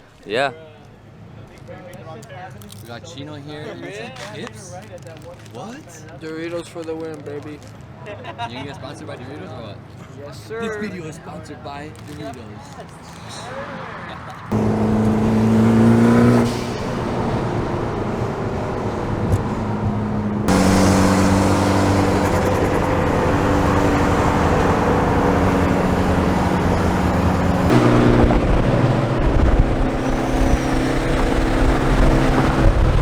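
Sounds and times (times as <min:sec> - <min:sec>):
road noise: 0:00.0 - 0:33.0
car engines cruising: 0:09.6 - 0:33.0.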